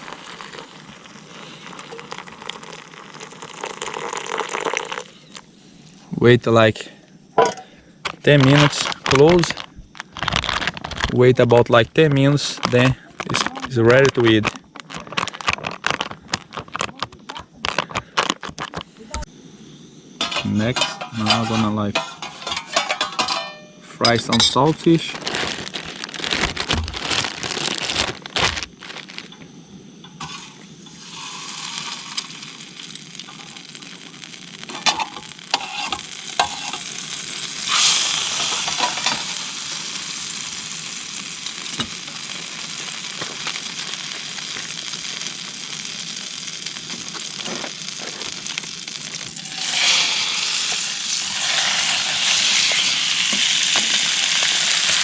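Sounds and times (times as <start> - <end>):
fish sizzling in a pan: 0.0 - 6.0, 7.2 - 11.3, 12.3 - 23.6, 24.3 - 55.0
pan and utensil knocks: 20.2 - 24.6.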